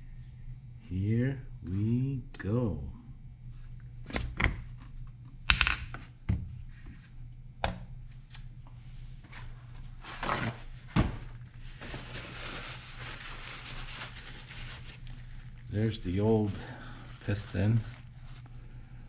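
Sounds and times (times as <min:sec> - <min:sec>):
rustling scrape: 0:09.2 - 0:15.6.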